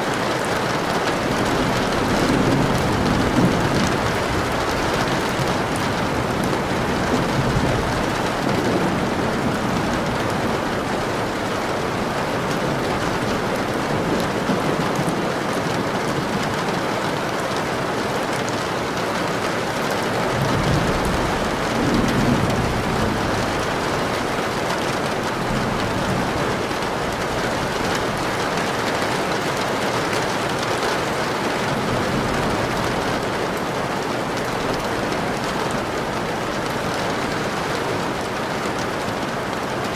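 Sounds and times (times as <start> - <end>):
steady rain falling: 0.0 - 39.9
low rumble of thunder: 1.0 - 17.1, 20.3 - 28.7.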